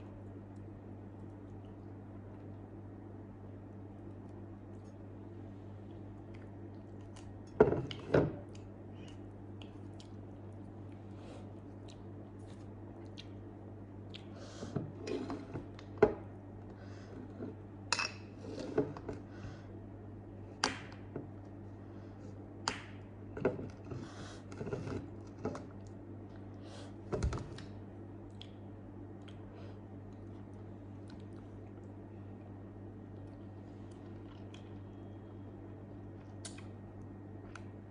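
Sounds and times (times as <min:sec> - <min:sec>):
steady low hum: 0:00.0 - 0:37.9
person chewing and eating: 0:08.6 - 0:14.4, 0:33.1 - 0:35.2
lip smacks and clicks: 0:11.8 - 0:13.4, 0:28.2 - 0:28.6, 0:36.2 - 0:36.8.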